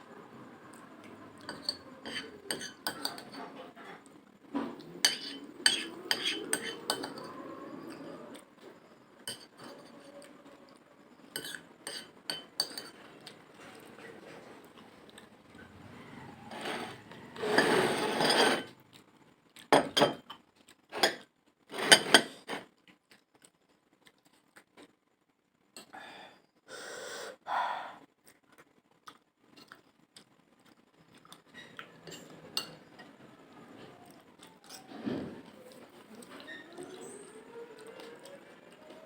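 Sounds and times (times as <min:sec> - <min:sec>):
cutlery scraping dishes: 0:01.4 - 0:04.0, 0:04.6 - 0:08.1, 0:09.3 - 0:10.1, 0:11.3 - 0:14.6, 0:16.5 - 0:18.8, 0:19.8 - 0:22.6, 0:31.6 - 0:33.1.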